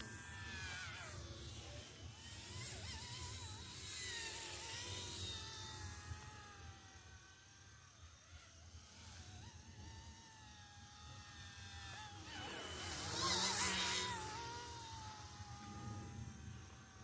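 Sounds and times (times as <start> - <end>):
small electric motor whining: 0.0 - 17.0.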